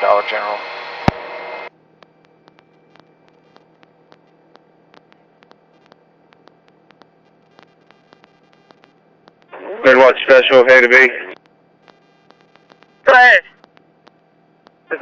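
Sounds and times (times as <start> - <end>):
electrical hum and static: 0.0 - 15.0
soft clicks: 2.1 - 9.5, 13.6 - 14.8.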